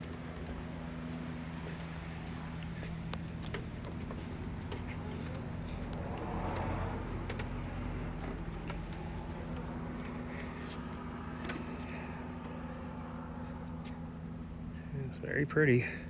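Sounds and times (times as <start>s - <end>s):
steady low rumble: 0.0s - 16.0s
car passing: 3.9s - 13.7s.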